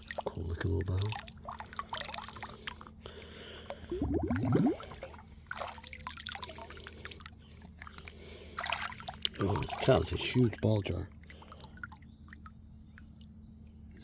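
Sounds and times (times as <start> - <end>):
small splashes and knocks: 0.0 - 2.9, 4.0 - 13.3
creek water trickling: 0.0 - 13.5
rising gurgle: 3.9 - 5.2.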